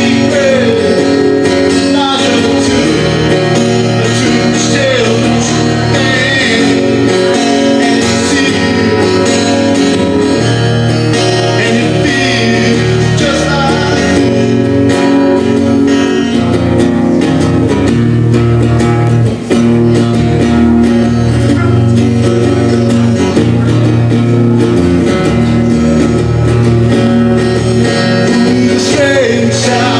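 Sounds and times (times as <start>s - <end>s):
person singing: 0.0s - 16.3s, 27.8s - 29.9s
guitar strumming: 0.0s - 29.9s.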